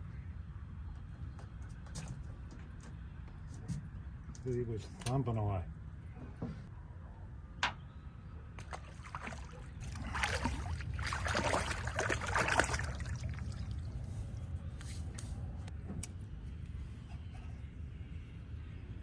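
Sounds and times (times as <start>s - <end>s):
water splashing and sloshing: 8.6s - 14.8s.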